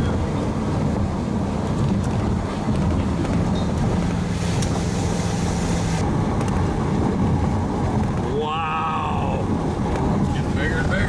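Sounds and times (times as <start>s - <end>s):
vehicle engine hum and road noise: 0.0s - 11.0s
hiss: 4.3s - 6.0s.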